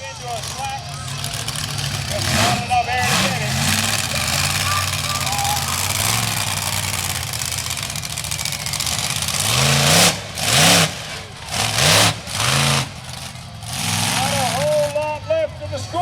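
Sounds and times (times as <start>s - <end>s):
truck engine running and revving: 0.0s - 16.0s.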